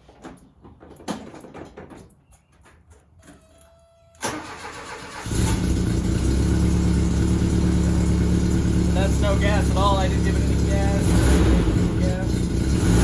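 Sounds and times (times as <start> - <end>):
car engine starting and idling: 4.2 - 13.0.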